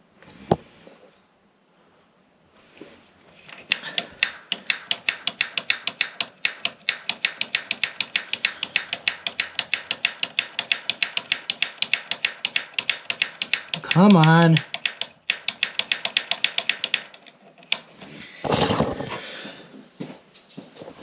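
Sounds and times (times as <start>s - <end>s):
spark igniter clicking rapidly: 3.7s - 17.2s.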